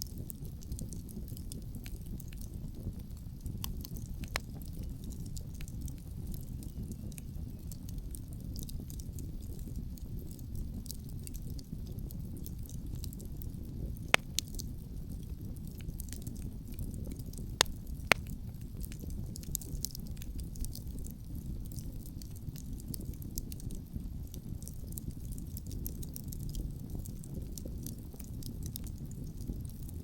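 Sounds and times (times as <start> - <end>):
campfire crackling: 0.0 - 30.0
loud sharp fire pops: 17.6 - 18.3.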